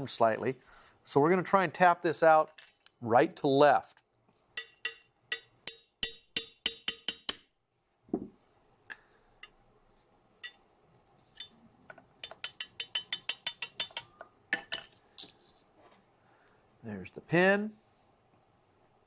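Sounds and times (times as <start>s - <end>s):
hammer tapping a metal punch: 4.6s - 7.5s, 12.2s - 14.8s.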